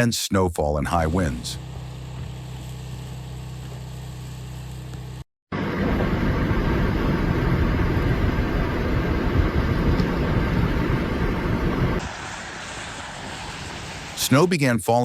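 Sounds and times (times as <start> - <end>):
loud low rumbling noise: 5.6 - 12.1.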